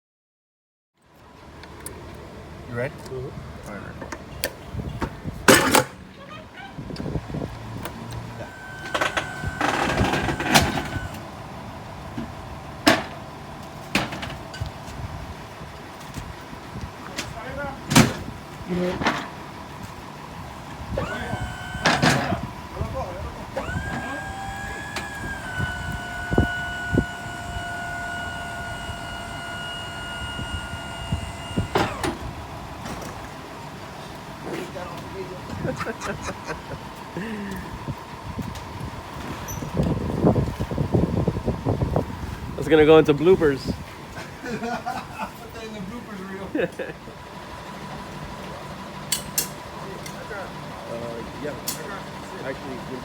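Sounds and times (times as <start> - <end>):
electric motor whine: 7.9 - 12.7, 20.4 - 33.4
high whine: 8.2 - 15.6.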